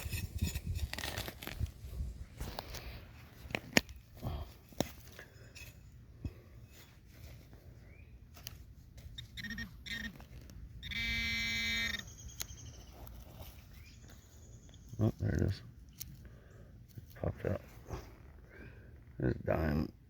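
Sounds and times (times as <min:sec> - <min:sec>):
digging in soil: 0:00.0 - 0:11.2, 0:11.8 - 0:19.2
metal detector buzzing: 0:08.4 - 0:13.0.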